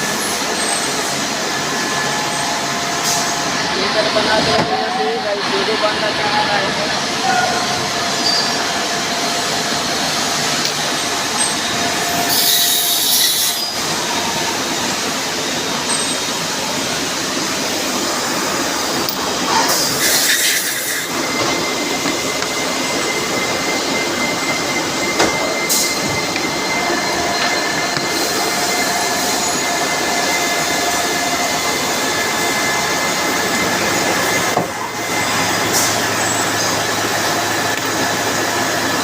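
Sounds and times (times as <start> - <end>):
machining noise: 0.0 - 39.0
thin squealing tones: 7.2 - 8.8
loud hiss bursts: 19.7 - 21.2.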